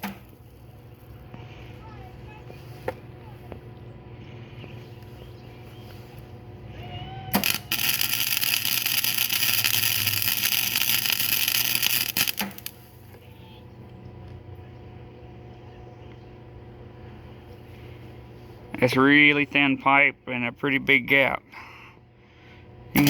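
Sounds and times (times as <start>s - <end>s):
welder crackling buzz: 0.0s - 1.6s, 7.3s - 13.3s
steady low hum: 0.0s - 23.0s.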